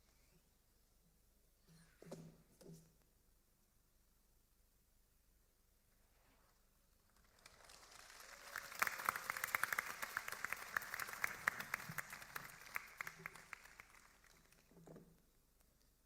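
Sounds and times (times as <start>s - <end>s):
audience applause: 7.2s - 14.7s.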